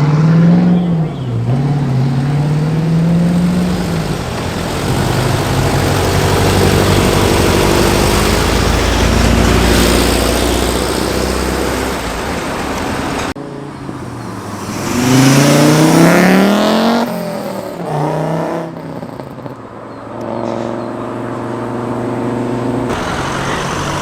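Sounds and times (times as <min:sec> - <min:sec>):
engine revving: 0:00.0 - 0:19.1, 0:20.2 - 0:24.0
car engine accelerating: 0:00.0 - 0:24.0
engine running steadily: 0:02.2 - 0:14.6.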